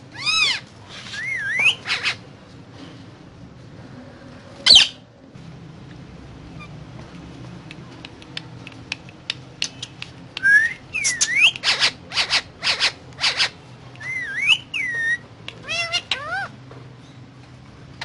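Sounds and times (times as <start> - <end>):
parrot whistling and calling: 0.2 - 2.2, 4.7 - 5.0, 10.4 - 16.5
sharp clicks: 7.7 - 10.5.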